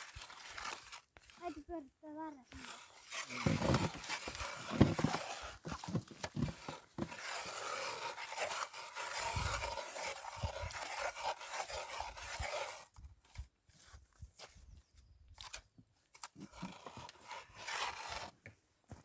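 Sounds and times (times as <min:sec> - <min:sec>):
ice auger grinding ice: 0:00.0 - 0:01.8, 0:02.5 - 0:13.0, 0:16.2 - 0:18.4.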